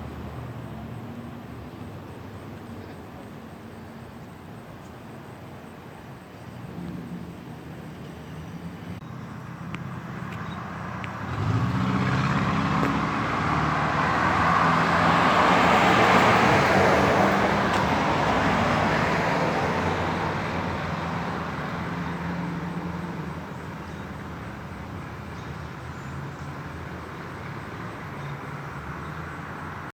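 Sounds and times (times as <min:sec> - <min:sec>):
vehicle driving past: 0:08.0 - 0:23.4.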